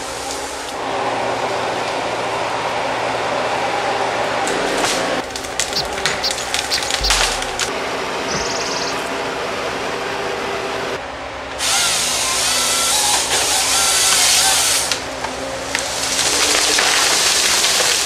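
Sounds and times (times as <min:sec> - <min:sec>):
short chirping glides: 0:05.4 - 0:07.7, 0:08.3 - 0:09.1.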